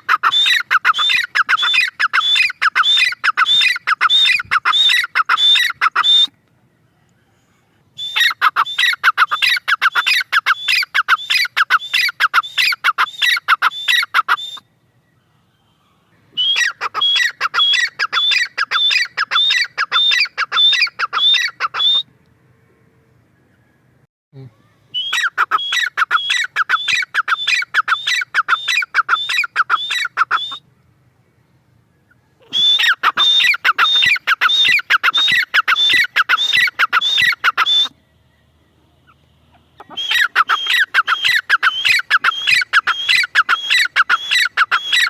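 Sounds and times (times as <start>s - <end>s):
francolin harsh squawking calls: 0.0s - 6.3s, 8.0s - 14.7s, 15.4s - 22.0s, 24.9s - 30.6s, 32.1s - 38.0s, 39.0s - 45.0s.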